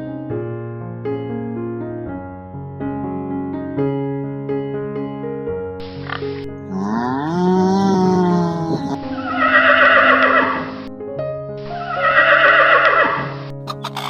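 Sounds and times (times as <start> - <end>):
background music: 0.0 - 14.0
horse whinnying: 6.7 - 10.8, 11.8 - 14.0.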